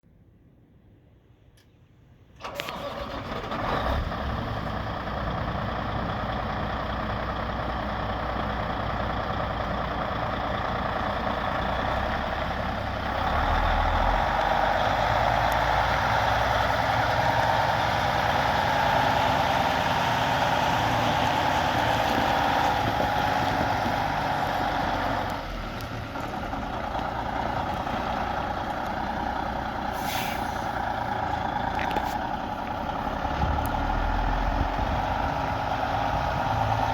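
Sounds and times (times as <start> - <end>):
diesel truck engine running: 2.4 - 36.9
air hiss: 29.9 - 30.8.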